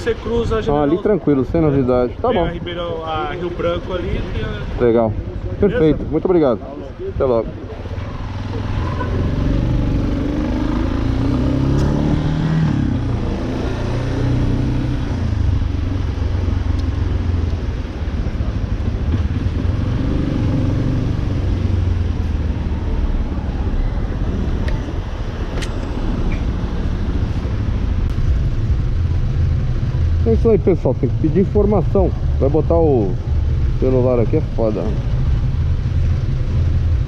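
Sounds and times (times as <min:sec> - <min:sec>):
motorcycle engine pulling away: 0:08.2 - 0:15.9.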